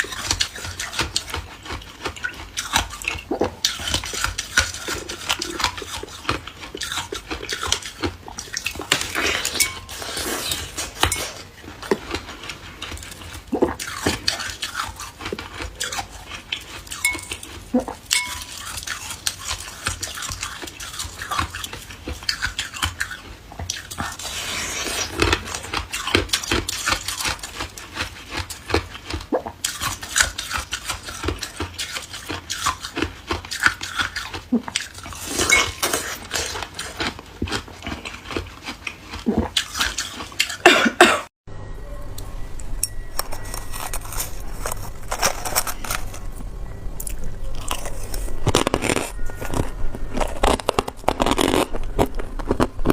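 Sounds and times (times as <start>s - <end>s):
ice cubes clinking and cracking: 43.1s - 46.4s, 47.6s - 52.9s.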